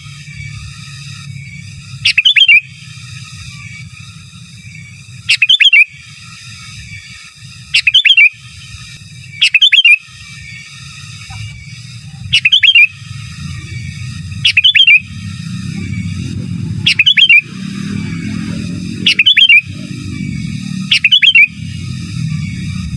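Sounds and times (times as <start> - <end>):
high ringing tone: 0.0 - 22.9
bird singing bubbling notes: 2.0 - 3.0, 5.2 - 6.0, 7.7 - 8.4, 9.3 - 10.0, 11.3 - 22.9
low rumble: 11.3 - 22.9.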